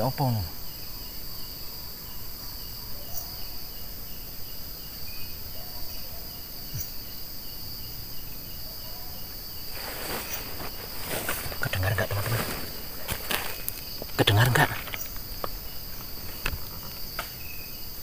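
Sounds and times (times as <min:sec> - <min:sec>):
cricket chirping: 0:00.0 - 0:18.0
insects buzzing: 0:00.0 - 0:18.0
distant dog barking: 0:02.2 - 0:03.8, 0:05.5 - 0:06.6, 0:08.6 - 0:09.4
rustle: 0:09.2 - 0:18.0.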